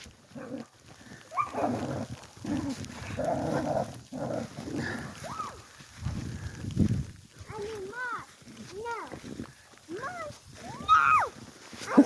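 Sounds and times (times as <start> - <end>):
dogs barking and yipping: 0.3 - 5.3, 11.8 - 12.0.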